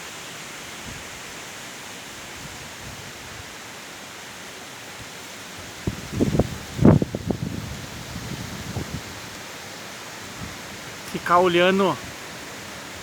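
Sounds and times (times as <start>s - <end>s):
wind rushing through trees: 0.0s - 13.0s
wind buffeting microphone: 5.7s - 9.3s.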